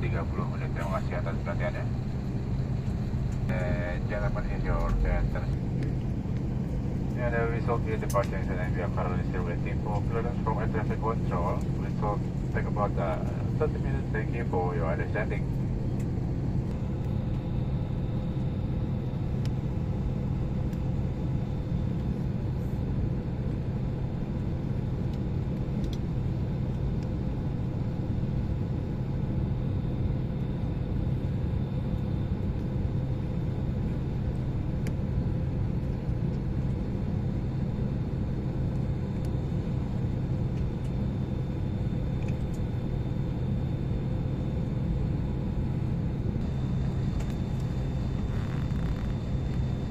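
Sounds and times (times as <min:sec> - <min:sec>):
faint high whine: 0:00.0 - 0:35.9, 0:36.5 - 0:49.9
airliner cabin drone: 0:00.0 - 0:49.9.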